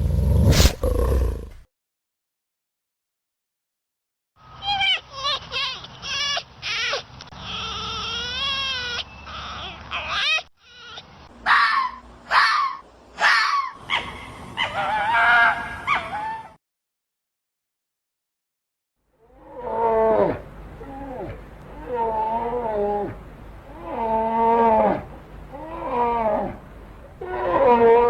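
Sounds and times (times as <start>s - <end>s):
high wavering animal cries: 19.4s - 26.6s.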